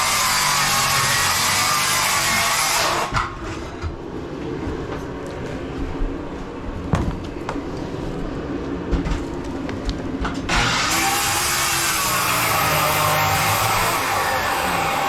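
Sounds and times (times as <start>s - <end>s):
electric power tool running: 0.0s - 3.1s, 10.5s - 15.0s.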